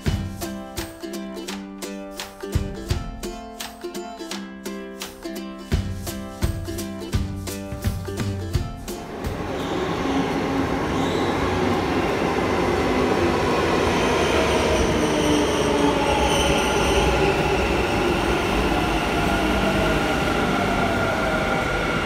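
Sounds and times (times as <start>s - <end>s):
electric train rumbling: 9.0s - 22.0s.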